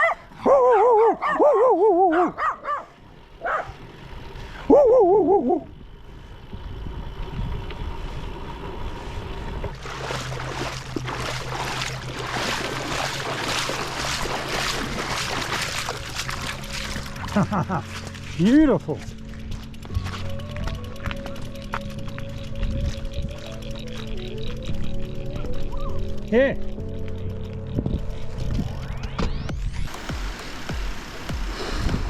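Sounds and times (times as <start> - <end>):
dog barking and yelping: 0.0 - 3.8, 4.7 - 5.6
bicycle tyres on gravel: 5.8 - 32.0.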